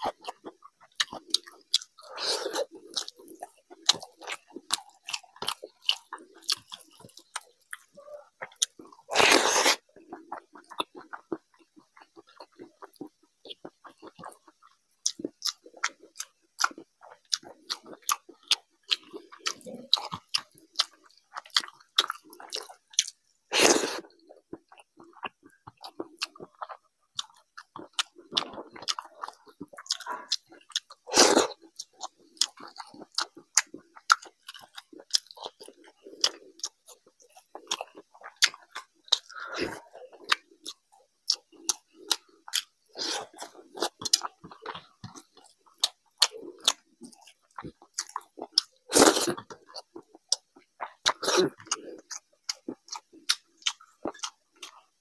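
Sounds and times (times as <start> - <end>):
person chewing and lip smacking: 0.0 - 55.0.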